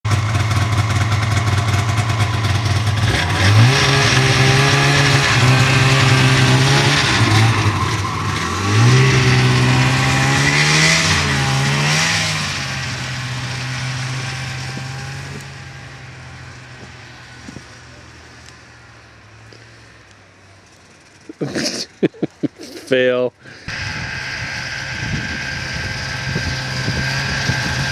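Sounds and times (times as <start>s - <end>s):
snowmobile engine revving: 0.1s - 18.2s, 21.2s - 27.9s.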